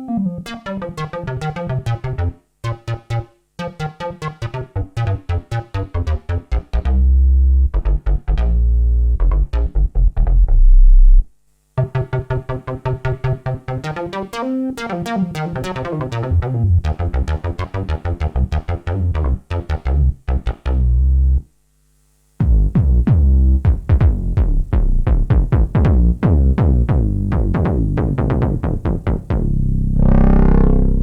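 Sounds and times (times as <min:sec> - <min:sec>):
synthesizer repeating note pattern: 0:00.0 - 0:04.7, 0:29.2 - 0:31.0
synthesizer plucked notes: 0:00.0 - 0:11.2, 0:11.8 - 0:21.4, 0:22.4 - 0:31.0.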